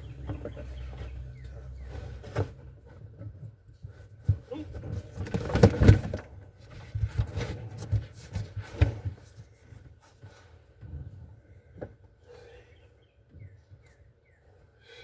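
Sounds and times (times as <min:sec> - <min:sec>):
scraping and rustling of carpet: 0:00.6 - 0:11.5.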